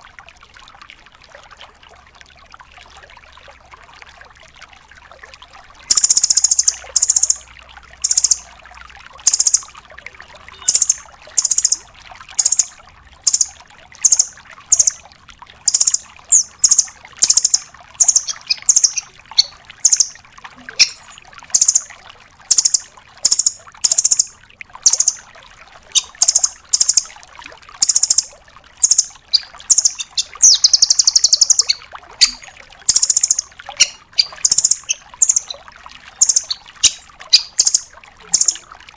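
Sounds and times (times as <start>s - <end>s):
faint water trickle: 0.0s - 38.9s
bird high rapid trills: 5.9s - 7.4s, 8.0s - 8.4s, 9.2s - 9.7s, 10.6s - 11.8s, 12.4s - 15.0s, 15.7s - 20.2s, 20.8s - 21.9s, 22.5s - 25.2s, 25.9s - 27.1s, 27.8s - 35.6s, 36.2s - 38.6s.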